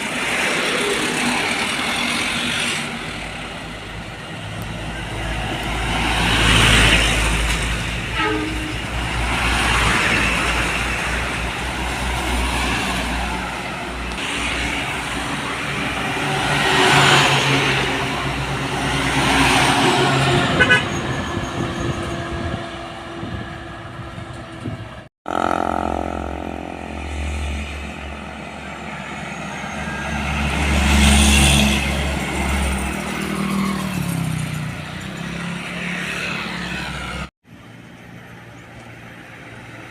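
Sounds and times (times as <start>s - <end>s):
vehicles passing: 0.0s - 39.9s
heavy engine drone: 21.3s - 31.1s.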